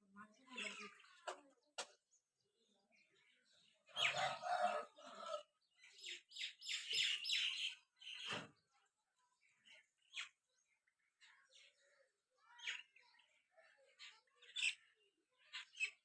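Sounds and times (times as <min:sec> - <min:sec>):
birds chirping and squawking: 0:00.0 - 0:02.0, 0:02.6 - 0:16.0.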